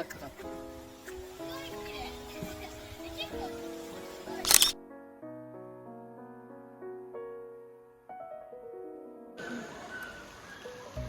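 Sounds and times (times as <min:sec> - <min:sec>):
steady background hiss: 0:00.0 - 0:04.8, 0:09.4 - 0:11.0.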